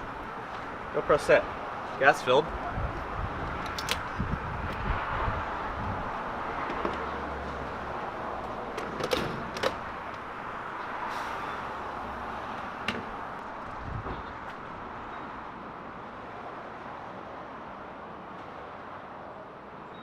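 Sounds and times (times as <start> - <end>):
vehicle noise low hum: 0.0 - 19.7.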